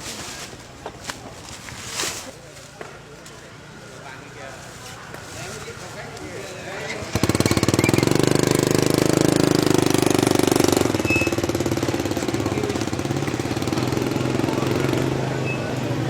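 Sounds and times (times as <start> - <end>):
small engine chugging: 3.8 - 16.0.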